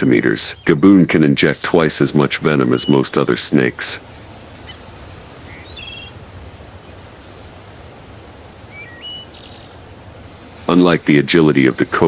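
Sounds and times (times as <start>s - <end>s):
steady background hiss: 0.0s - 12.0s
thin high steady tone: 1.6s - 9.4s
bird chirps and whistles: 2.0s - 7.5s.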